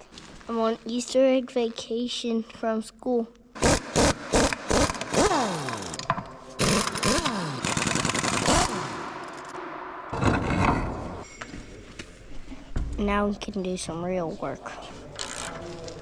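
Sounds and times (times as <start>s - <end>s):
handheld power tool whirring: 3.6s - 9.6s.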